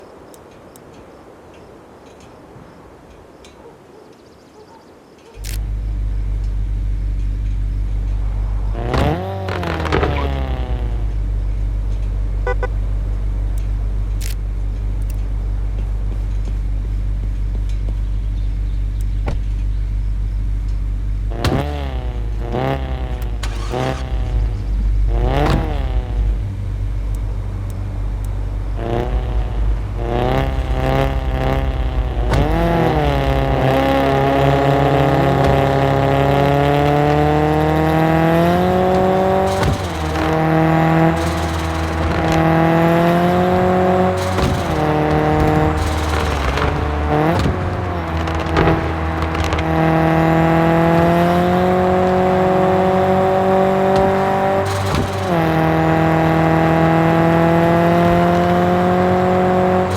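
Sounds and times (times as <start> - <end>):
car exhaust idling and revving: 5.3 - 59.9.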